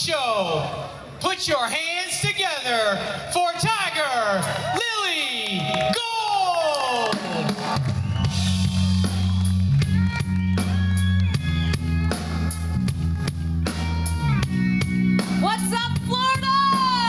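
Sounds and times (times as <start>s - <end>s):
drum kit beat: 7.1s - 17.0s
guitar: 8.1s - 17.0s
held bass notes: 8.2s - 17.0s.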